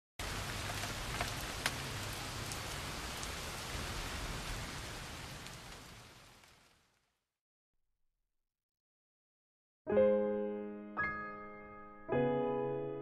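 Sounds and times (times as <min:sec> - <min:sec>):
rain drop ticks: 0:00.2 - 0:07.1
rain falling steadily: 0:00.2 - 0:07.3.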